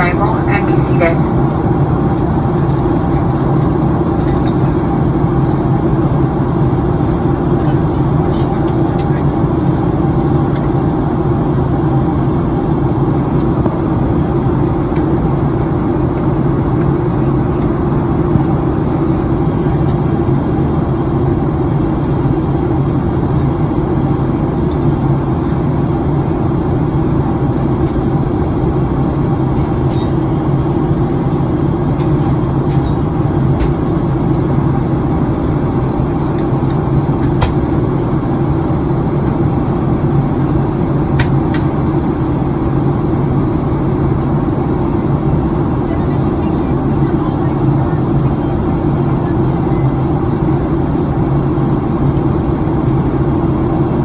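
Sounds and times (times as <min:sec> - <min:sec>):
air rushing along fuselage: 0:00.0 - 0:54.0
jet engines rumbling: 0:00.0 - 0:54.0.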